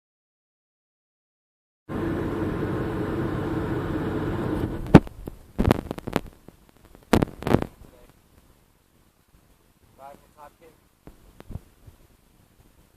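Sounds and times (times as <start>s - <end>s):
truck engine idling: 1.9s - 5.0s.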